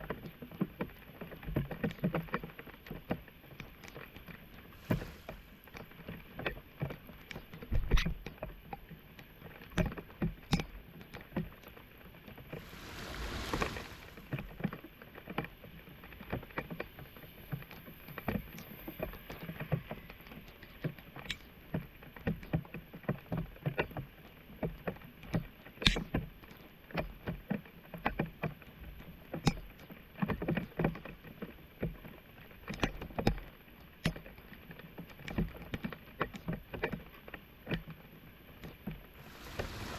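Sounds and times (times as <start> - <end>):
water rushing: 4.7 - 5.7, 12.5 - 14.5, 39.2 - 39.9
splashing in shallow water: 12.6 - 14.3, 39.2 - 39.9.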